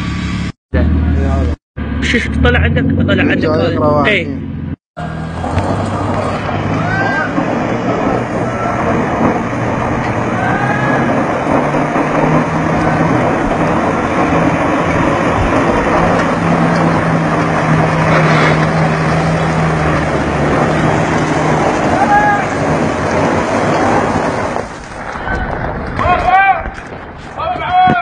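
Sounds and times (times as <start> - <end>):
car engine straining under load: 0.8 - 27.6
wheels spinning on loose dirt: 5.0 - 28.0.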